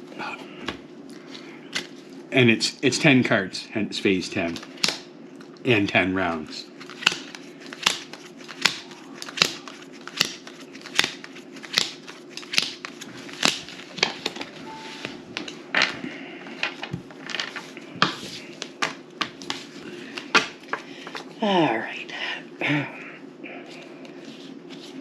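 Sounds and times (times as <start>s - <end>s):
steady low hum: 0.0s - 25.0s
playing cards snapping on table: 6.9s - 13.6s.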